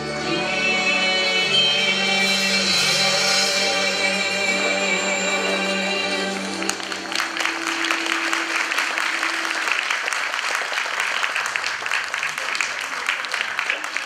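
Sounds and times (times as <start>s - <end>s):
held musical note: 0.0s - 10.4s
audience applauding: 5.2s - 14.0s.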